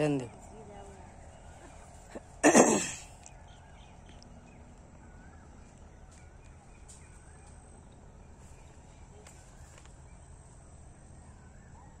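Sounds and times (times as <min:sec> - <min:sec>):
faint bird chirps: 0:03.0 - 0:12.0.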